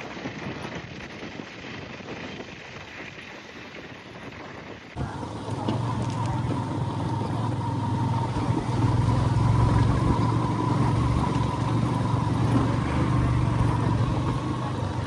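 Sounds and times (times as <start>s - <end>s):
vehicle engine and road noise: 4.9s - 15.0s.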